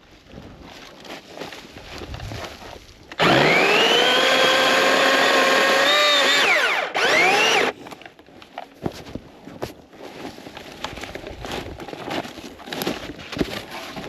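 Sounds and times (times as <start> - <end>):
electric chainsaw whining: 3.1 - 7.8.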